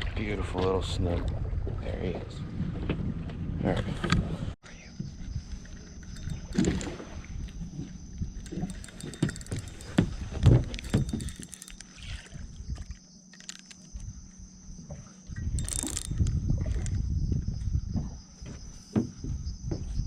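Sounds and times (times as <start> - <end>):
choppy water: 0.0 - 4.6, 5.6 - 13.6.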